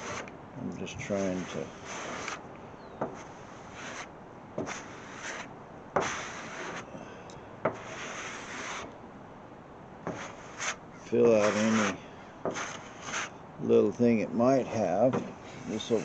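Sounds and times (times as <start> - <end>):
spreader scraping filler on metal: 1.1 - 2.4, 3.0 - 6.9, 7.7 - 8.9, 10.0 - 13.4, 14.8 - 16.0.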